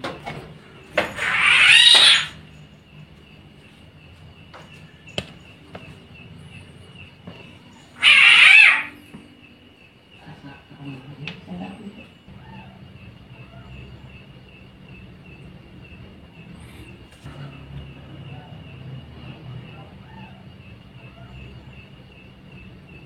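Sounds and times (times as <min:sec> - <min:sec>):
harsh animal calls: 0:01.0 - 0:02.5, 0:06.9 - 0:09.4, 0:10.2 - 0:23.0.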